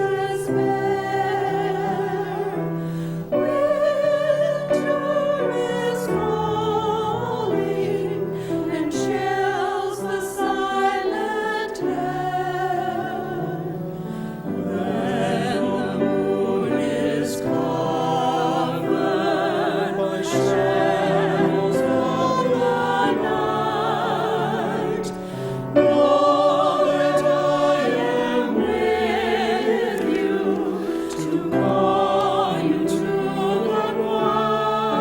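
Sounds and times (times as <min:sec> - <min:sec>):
church choir singing: 0:00.0 - 0:35.0
musical accompaniment: 0:11.2 - 0:35.0.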